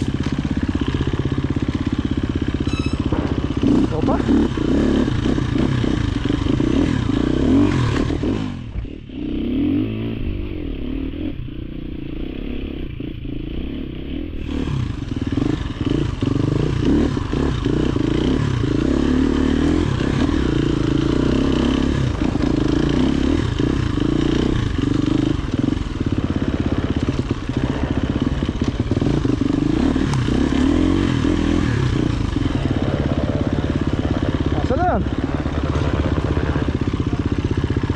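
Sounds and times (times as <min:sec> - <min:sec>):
dirt bike engine running: 0:00.0 - 0:37.9
knocks and clatter: 0:02.6 - 0:03.9.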